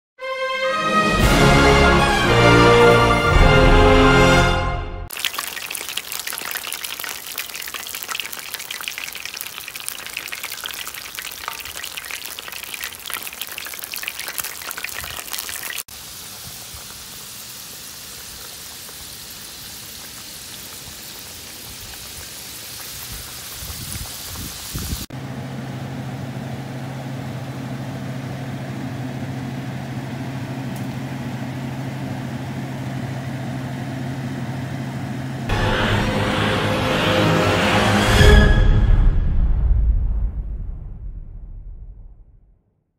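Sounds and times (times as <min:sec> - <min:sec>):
fish frying in hot oil: 0:05.1 - 0:25.1.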